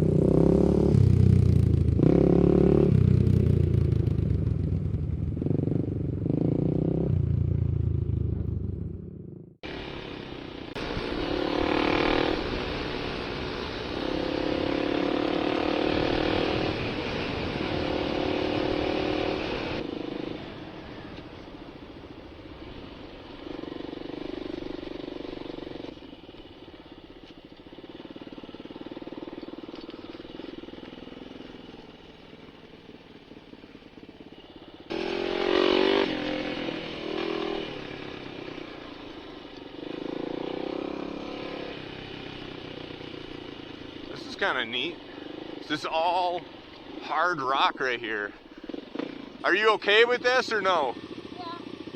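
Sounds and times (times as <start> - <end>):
dirt bike engine revving: 0.0 - 4.6, 9.6 - 20.9, 27.8 - 51.9.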